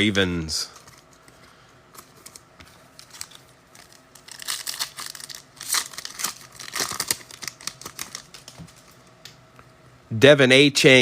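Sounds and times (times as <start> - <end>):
foil wrapper tearing and crinkling: 2.1 - 9.0.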